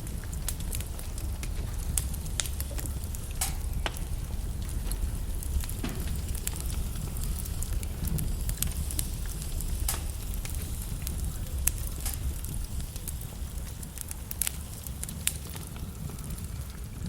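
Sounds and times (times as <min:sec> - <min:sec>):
logs crackling in a fireplace: 0:00.0 - 0:17.0.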